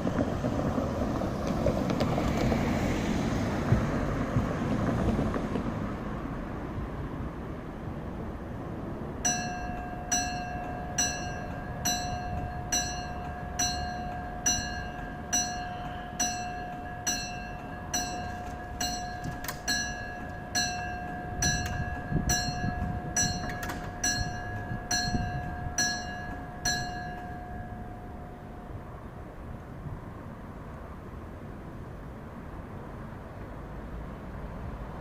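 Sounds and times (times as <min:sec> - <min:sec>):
level crossing bell ringing: 0:09.2 - 0:28.8.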